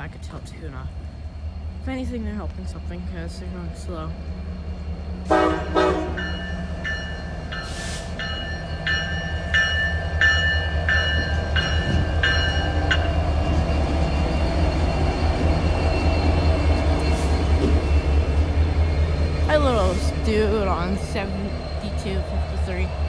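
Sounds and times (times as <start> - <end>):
diesel locomotives rumbling: 0.0 - 23.0
locomotive bell ringing: 5.3 - 23.0.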